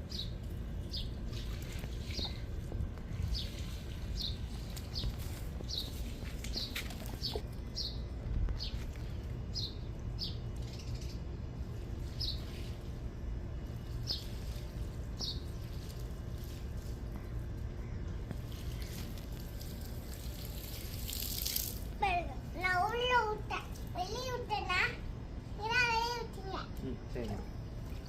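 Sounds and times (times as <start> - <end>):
low steady rumble: 0.0 - 28.0
small bird chirping: 3.2 - 11.3, 15.2 - 15.8.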